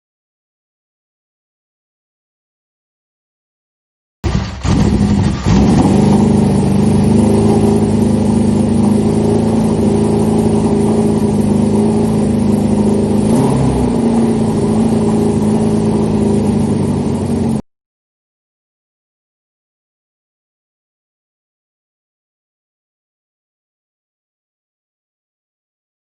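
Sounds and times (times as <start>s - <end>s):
motorcycle engine revving and idling: 4.2s - 17.6s.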